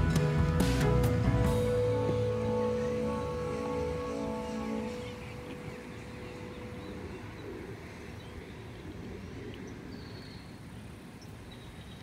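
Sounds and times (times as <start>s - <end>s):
low outdoor rumble: 0.0s - 11.8s
faint bird chirps: 1.6s - 12.0s.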